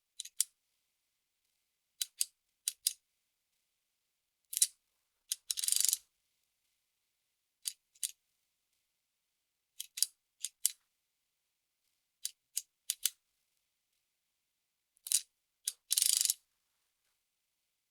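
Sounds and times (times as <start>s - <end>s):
abacus beads clicking: 5.3s - 6.0s, 15.1s - 16.4s
rattle of many beads: 15.9s - 16.4s.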